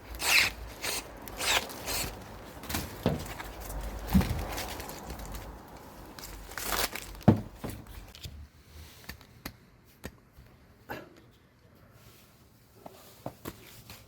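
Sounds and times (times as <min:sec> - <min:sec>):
wrapping crinkling and rustling: 0:00.6 - 0:09.2.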